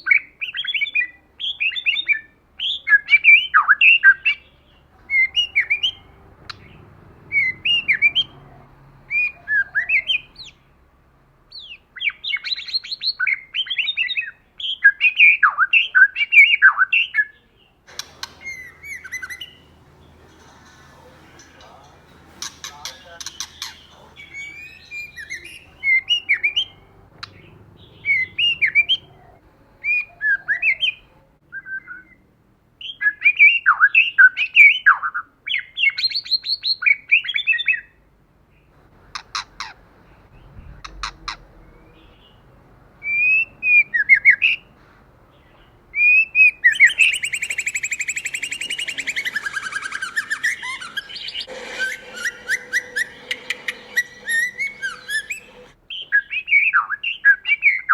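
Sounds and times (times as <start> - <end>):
bird whistling song: 5.1 - 6.7, 7.3 - 10.6, 17.9 - 32.2, 43.0 - 44.6, 46.0 - 57.9
bird harsh chattering: 17.9 - 29.4, 46.6 - 55.8.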